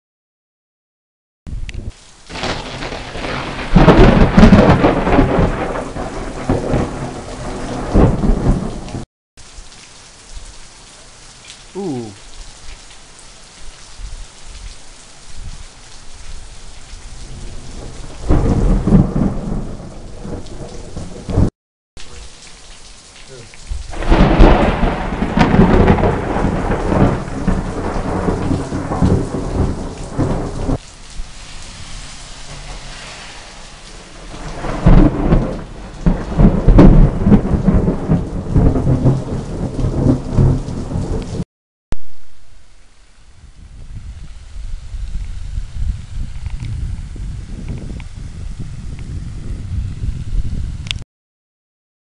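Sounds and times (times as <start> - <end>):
steady rain: 1.5 - 41.4, 42.1 - 51.0
rolling thunder: 2.3 - 9.0, 17.2 - 21.5, 23.7 - 41.4.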